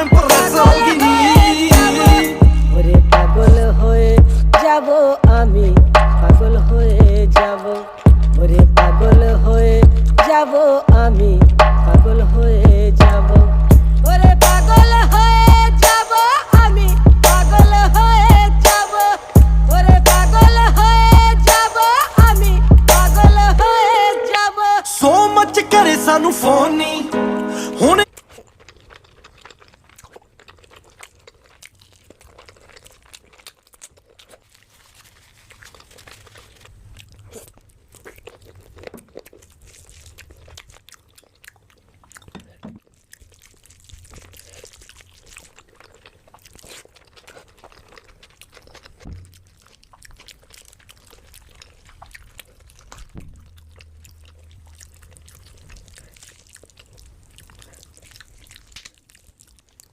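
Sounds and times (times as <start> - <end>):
wet mouth clicks and smacks: 0.0 - 23.7, 28.0 - 59.9
person chewing and crunching food: 0.0 - 59.9.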